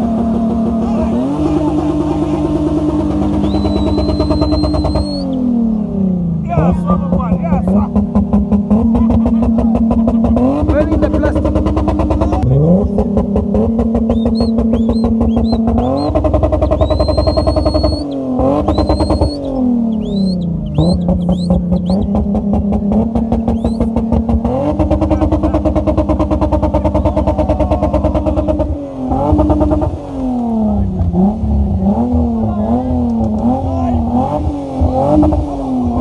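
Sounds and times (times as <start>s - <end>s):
car engine at high revs: 0.0s - 36.0s
short high squeals: 3.3s - 5.4s, 14.1s - 22.0s.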